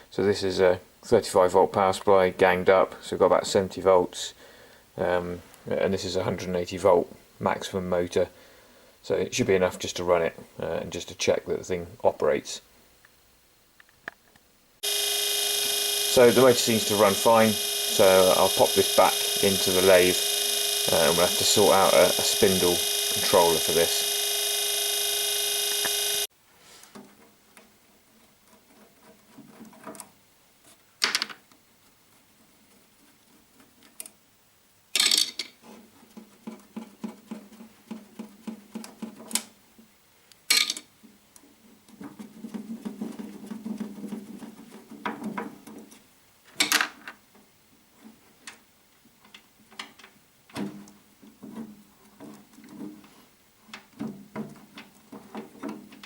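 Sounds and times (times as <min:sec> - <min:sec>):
small parts and tools clicking: 0:14.8 - 0:26.3
steady machine whine: 0:14.8 - 0:26.3.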